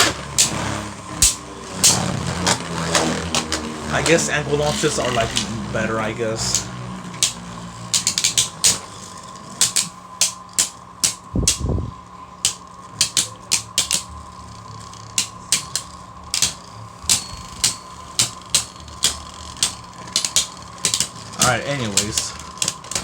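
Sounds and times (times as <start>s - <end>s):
faint steady whine: 0.0s - 23.0s
spinning tops clashing: 12.5s - 23.0s.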